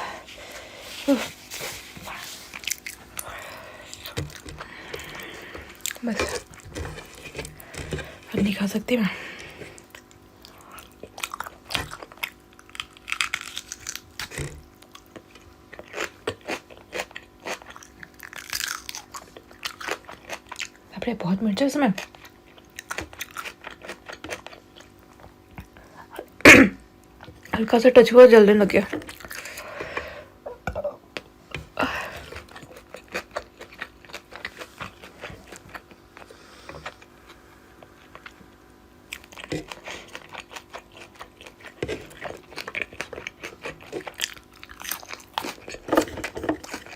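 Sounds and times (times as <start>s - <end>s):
person chewing food: 0.0s - 20.9s, 22.0s - 26.4s, 28.9s - 46.9s
wet chewing smacks: 32.2s - 46.9s.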